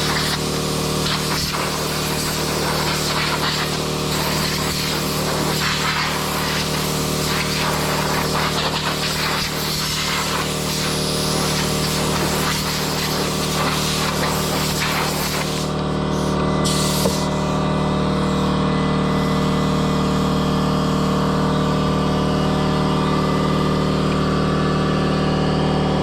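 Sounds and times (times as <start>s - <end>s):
blower rushing air: 0.0s - 26.0s
motor hum: 0.0s - 26.0s.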